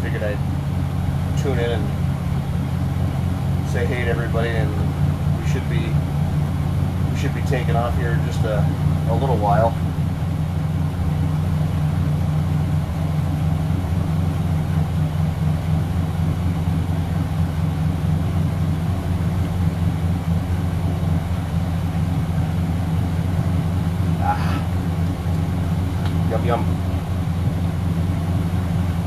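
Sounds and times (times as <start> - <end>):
boat engines idling: 0.0 - 29.0.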